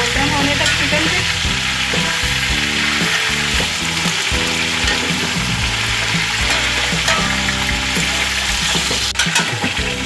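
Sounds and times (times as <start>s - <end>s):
chicken frying in hot oil: 0.0s - 10.0s.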